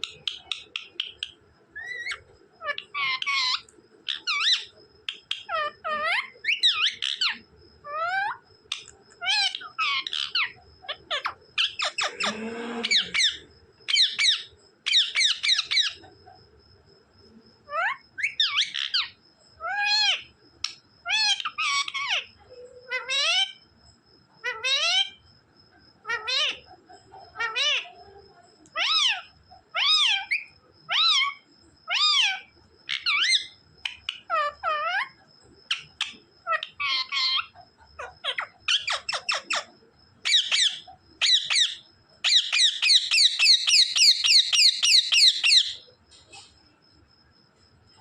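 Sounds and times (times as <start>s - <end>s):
parrot whistling and squawking: 9.3s - 16.0s, 34.2s - 45.8s.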